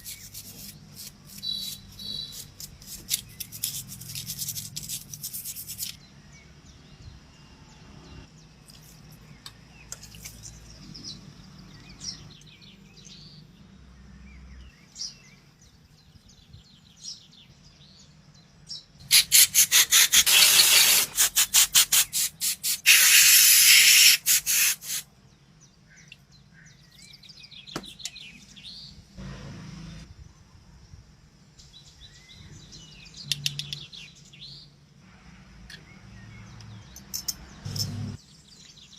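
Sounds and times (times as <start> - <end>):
birds chirping: 0.0 - 4.4, 25.3 - 29.0
loud hiss in bursts: 19.1 - 25.0.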